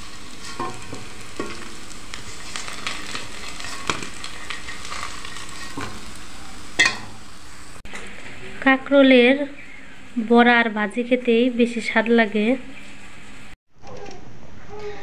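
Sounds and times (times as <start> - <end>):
fritters sizzling in oil: 0.0 - 13.6
metal spatula scraping a pan: 0.1 - 6.2.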